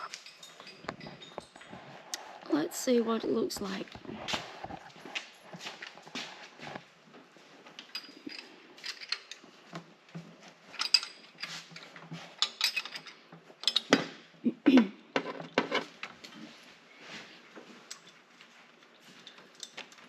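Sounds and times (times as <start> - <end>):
metallic clinks of tools: 0.0 - 1.7, 7.8 - 9.4, 10.7 - 11.8, 12.4 - 14.0.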